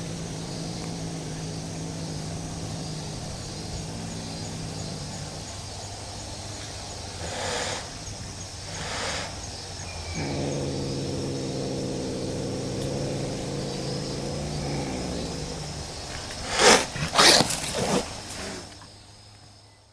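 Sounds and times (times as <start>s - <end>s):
cat growling: 0.0s - 5.9s, 8.7s - 18.8s
cat harsh outbursts: 9.9s - 17.9s.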